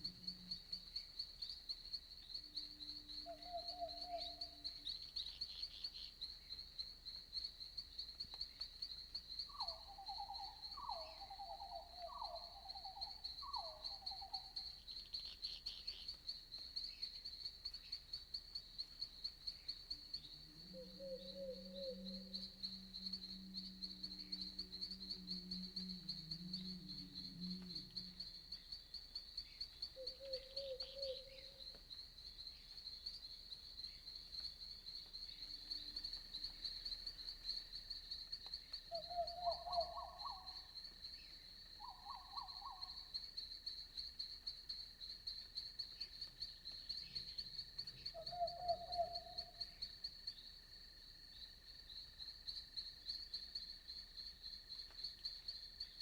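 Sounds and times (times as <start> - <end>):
night insects trilling: 0.0 - 56.0
frog-like croaks: 20.4 - 28.6
low drone: 20.6 - 28.6.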